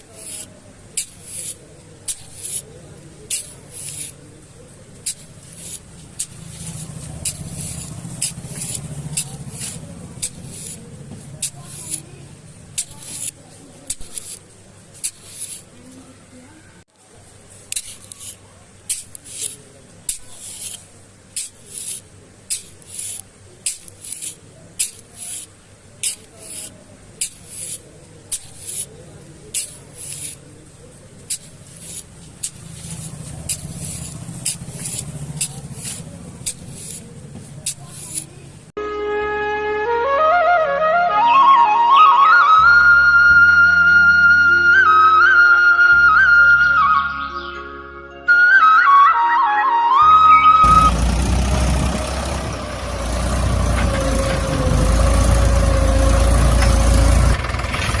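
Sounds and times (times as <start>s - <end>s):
short hissing strokes: 0.0s - 2.7s, 3.3s - 4.2s, 5.0s - 12.1s, 15.0s - 15.8s, 17.7s - 30.5s, 31.2s - 38.4s.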